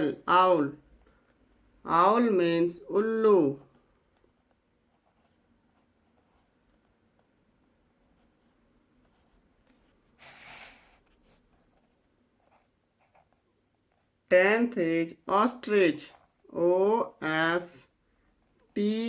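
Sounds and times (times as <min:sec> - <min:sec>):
scratchy rustle: 0:09.2 - 0:13.4.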